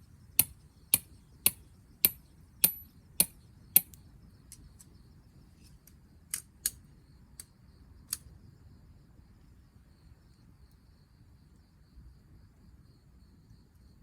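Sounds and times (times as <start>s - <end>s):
crickets chirping: 0.0s - 14.0s
sharp clicks: 0.4s - 4.9s.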